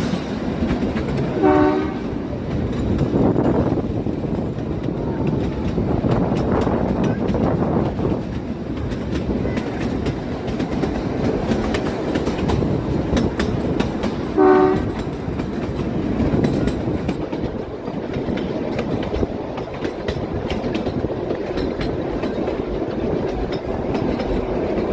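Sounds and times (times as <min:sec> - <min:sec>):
train rumbling: 0:00.0 - 0:24.9
wheels clicking over rail joints: 0:00.0 - 0:24.9
train horn toot: 0:01.3 - 0:02.3, 0:14.3 - 0:15.1.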